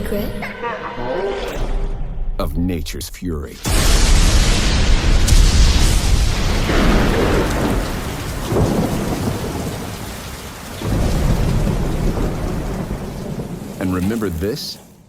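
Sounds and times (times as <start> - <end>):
heavy rain: 3.7 - 15.0
rolling thunder: 3.7 - 15.0.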